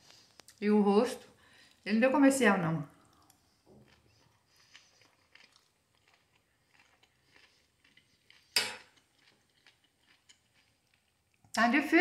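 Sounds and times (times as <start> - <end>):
close-up chewing crunches: 2.9 - 11.5.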